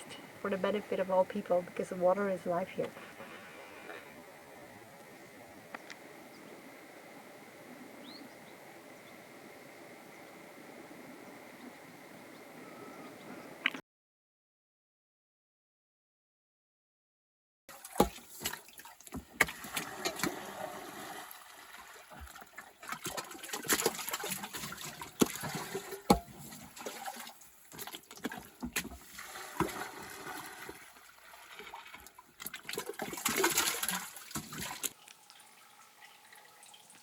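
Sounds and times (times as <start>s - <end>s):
water splashing and sloshing: 17.7s - 37.0s.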